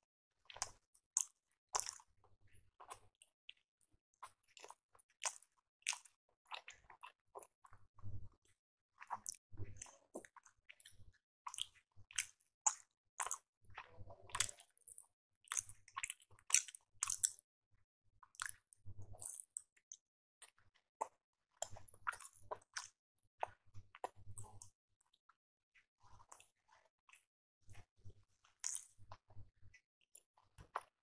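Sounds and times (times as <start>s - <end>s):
person chewing fried dumplings: 0.5s - 2.1s, 4.2s - 7.8s, 9.0s - 17.4s, 18.3s - 19.9s, 20.5s - 24.7s, 28.5s - 29.3s.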